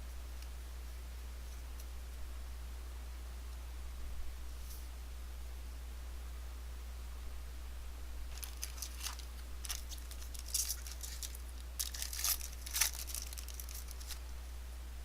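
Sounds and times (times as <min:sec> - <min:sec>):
low hum: 0:00.0 - 0:15.0
plastic wrapper crinkling and tearing: 0:08.3 - 0:14.2.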